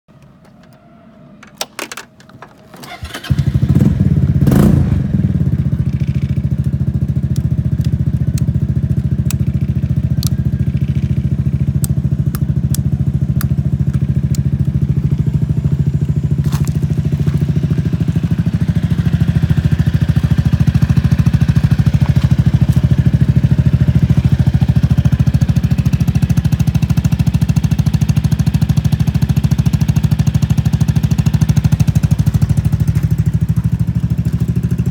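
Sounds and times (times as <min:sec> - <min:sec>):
scooter engine starting and idling: 0:00.2 - 0:34.9
starter clicks: 0:05.8 - 0:14.8.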